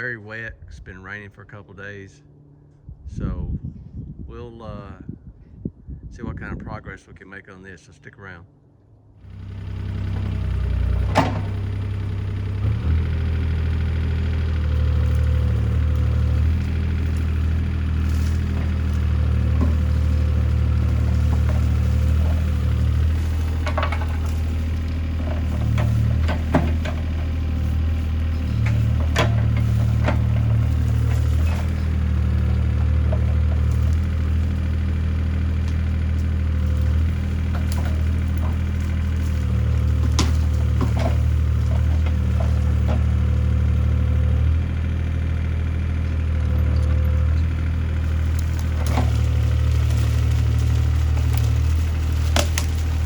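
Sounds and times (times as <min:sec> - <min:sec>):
excavator diesel engine running: 0:09.2 - 0:53.0
sharp knocks and cracks: 0:09.7 - 0:44.7, 0:46.1 - 0:53.0.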